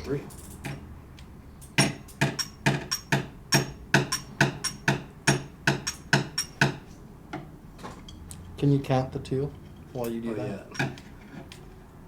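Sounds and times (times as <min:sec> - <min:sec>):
sharp percussive knocks: 0:01.8 - 0:07.5.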